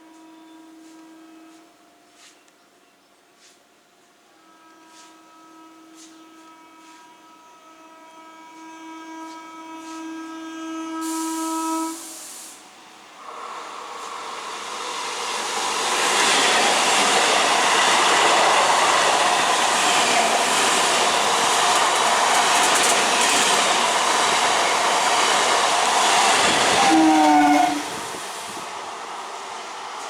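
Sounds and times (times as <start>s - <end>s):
train wheels on rails: 8.5s - 30.0s.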